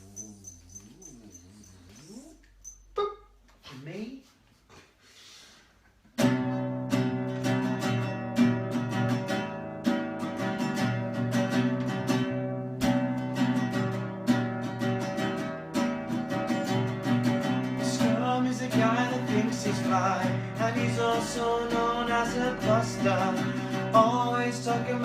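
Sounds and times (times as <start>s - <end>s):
acoustic guitar strumming chords: 6.2s - 25.0s.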